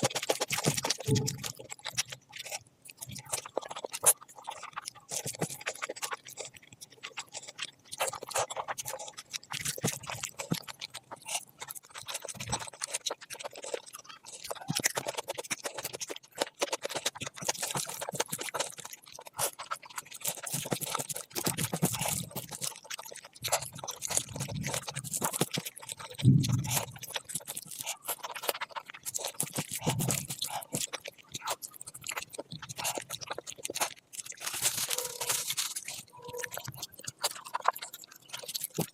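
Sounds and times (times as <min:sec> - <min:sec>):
chewing: 0:00.0 - 0:38.9
mouth clicks: 0:26.0 - 0:28.6.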